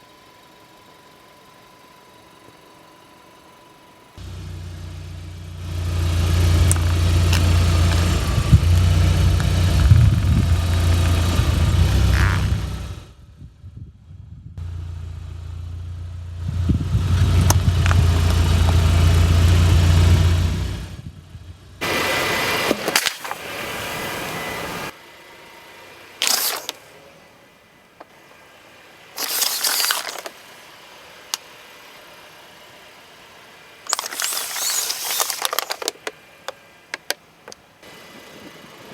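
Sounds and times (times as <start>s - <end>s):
car engine running: 0.0s - 13.5s, 14.3s - 22.0s
short bursts of noise: 26.2s - 27.0s, 29.2s - 30.5s, 33.9s - 37.6s
objects cracking under car: 33.9s - 37.6s.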